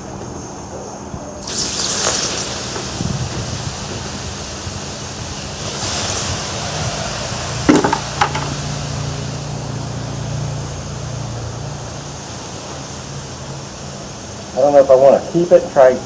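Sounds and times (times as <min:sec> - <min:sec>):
furnace burner rushing: 0:01.4 - 0:16.0.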